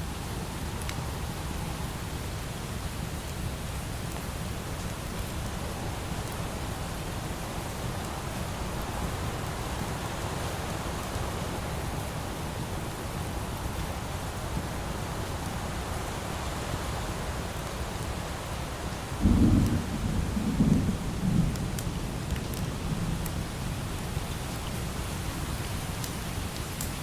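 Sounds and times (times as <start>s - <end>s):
light rain hiss: 0.0s - 27.0s
thunder rumbling: 19.2s - 23.2s.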